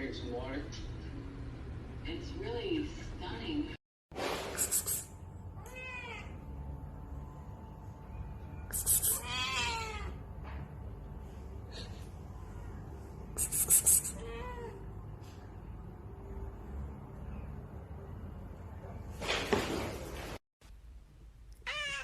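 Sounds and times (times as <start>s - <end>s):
cat meowing: 5.6s - 6.4s, 9.0s - 10.2s, 14.1s - 14.9s, 21.6s - 22.0s.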